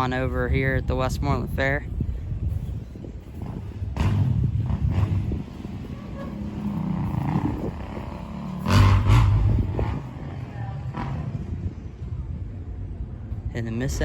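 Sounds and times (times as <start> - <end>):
dirt bike engines revving: 3.1 - 12.6.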